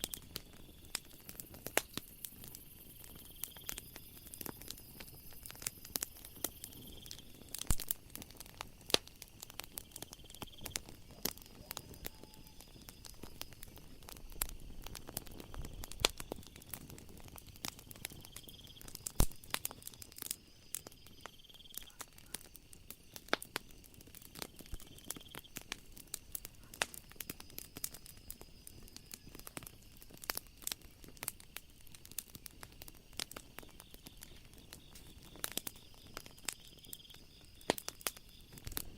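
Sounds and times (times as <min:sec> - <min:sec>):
wood fire crackling and popping: 0:00.0 - 0:38.9
faint high chirp: 0:11.5 - 0:13.1.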